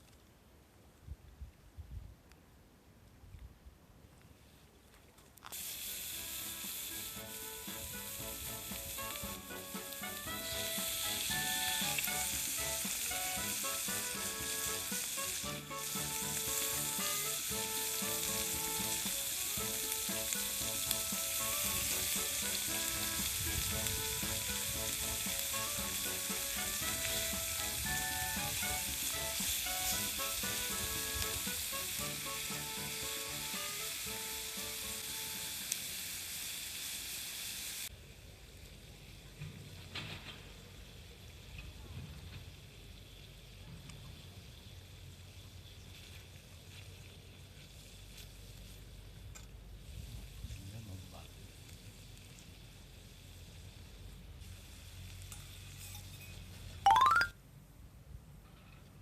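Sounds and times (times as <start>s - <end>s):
meat sizzling on a grill: 5.4s - 39.2s, 40.0s - 56.4s
background music melody: 6.0s - 35.4s, 56.9s - 57.4s.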